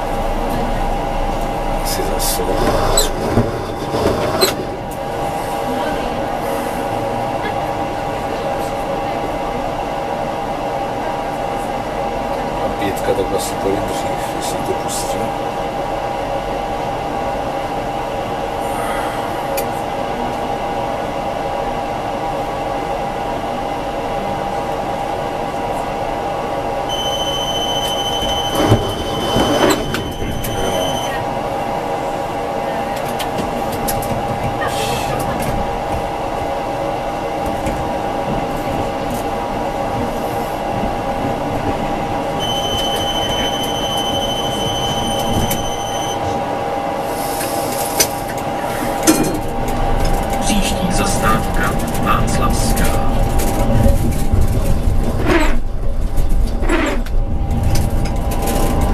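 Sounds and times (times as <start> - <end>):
tram running on rails: 0.0 - 58.9
high steady squeal: 26.9 - 31.2, 42.4 - 46.4.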